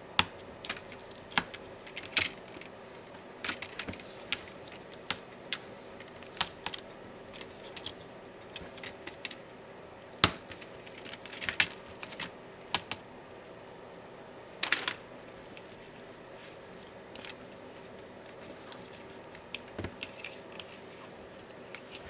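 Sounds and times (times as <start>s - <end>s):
small tools clicking on laptop parts: 0.2s - 13.0s, 18.2s - 22.0s.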